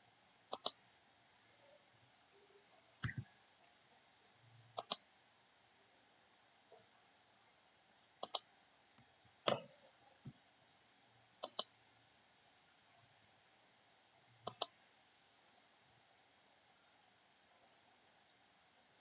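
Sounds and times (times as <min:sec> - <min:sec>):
computer mouse clicks: 0:00.5 - 0:00.8, 0:02.8 - 0:03.3, 0:04.8 - 0:05.0, 0:08.2 - 0:08.5, 0:09.5 - 0:09.7, 0:11.4 - 0:11.8, 0:14.4 - 0:14.8.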